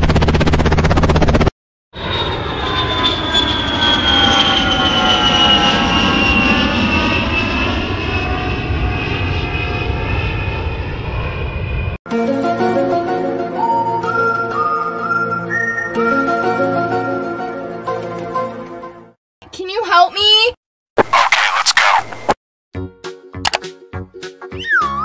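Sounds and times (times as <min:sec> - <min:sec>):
jet engines passing by: 0:00.0 - 0:12.0.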